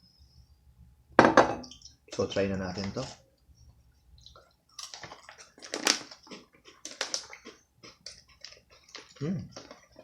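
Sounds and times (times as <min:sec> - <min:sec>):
crisp crunching of eating: 0:04.7 - 0:10.0.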